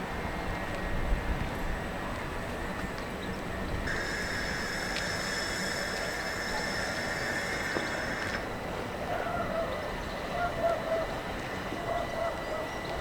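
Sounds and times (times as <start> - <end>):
electric train rumbling: 0.0 - 13.0
high electrical whine: 3.9 - 8.6.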